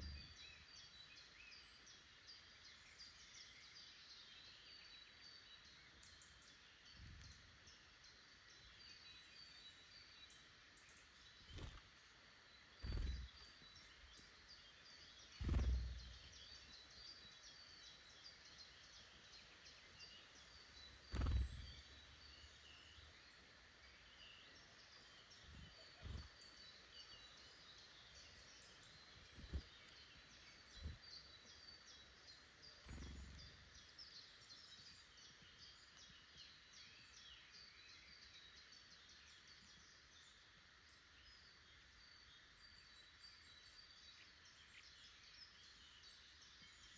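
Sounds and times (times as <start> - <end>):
woodland birds chirping: 0.0 - 46.9
dull low thumps: 15.4 - 16.2.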